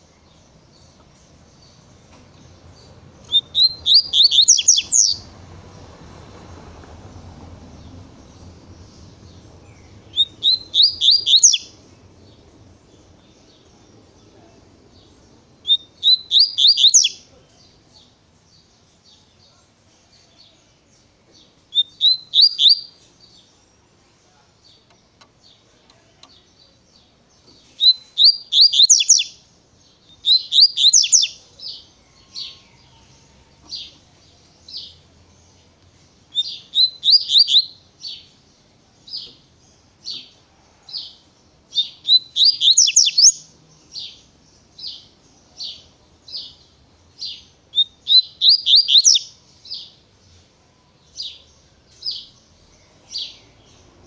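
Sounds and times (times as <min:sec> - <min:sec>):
bird singing whistled notes: 0:02.7 - 0:05.3, 0:08.2 - 0:14.2, 0:15.0 - 0:17.3, 0:17.9 - 0:25.2, 0:27.4 - 0:34.0, 0:36.3 - 0:38.4, 0:41.7 - 0:50.0.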